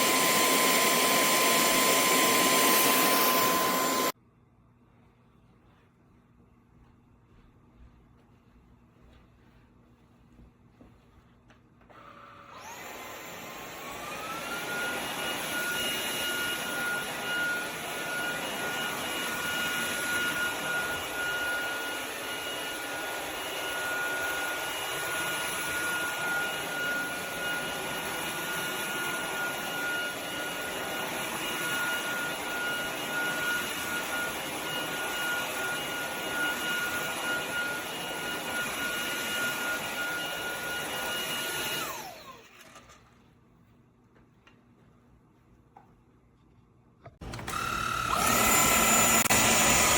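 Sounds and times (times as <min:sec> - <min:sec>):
vacuum cleaner motor whine: 0:00.0 - 0:04.2, 0:11.8 - 0:43.0, 0:47.2 - 0:49.9.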